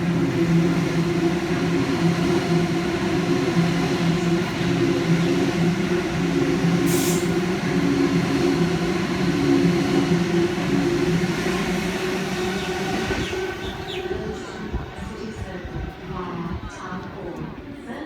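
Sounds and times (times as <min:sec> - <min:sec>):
electric train motors humming: 0:00.0 - 0:18.0.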